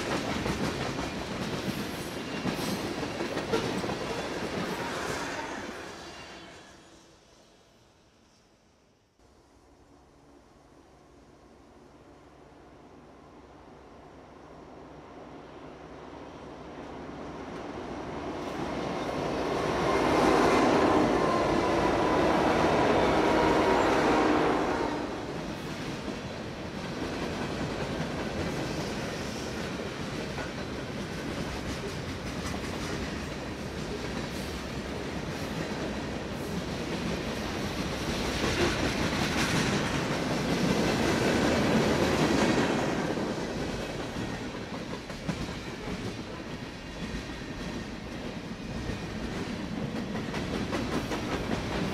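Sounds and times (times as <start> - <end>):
diesel locomotives passing: 0.0 - 8.4, 9.3 - 51.9.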